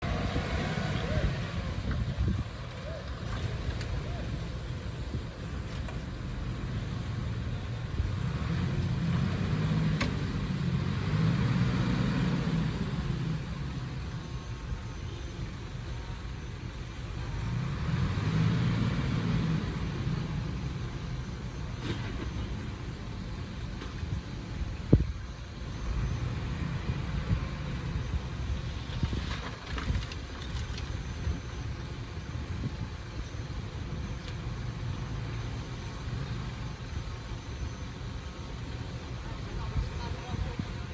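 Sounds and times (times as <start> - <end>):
heavy machinery diesel engine: 0.0 - 40.9
faint crackles: 28.8 - 32.0.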